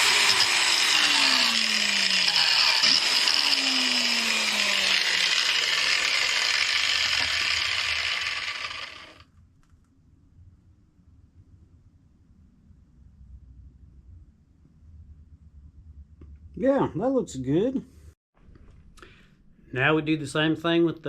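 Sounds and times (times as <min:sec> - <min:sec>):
wire wheel grinding metal: 0:00.0 - 0:09.2.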